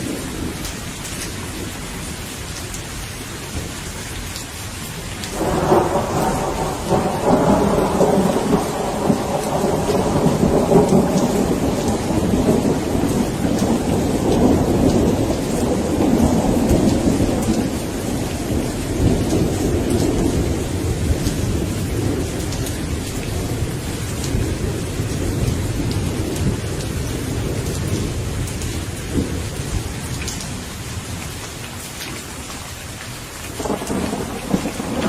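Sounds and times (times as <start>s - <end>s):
steady rain falling: 0.0s - 35.0s
raindrop ticks: 0.2s - 1.4s, 2.0s - 35.0s
rolling thunder rumble: 5.3s - 31.3s, 33.5s - 35.0s.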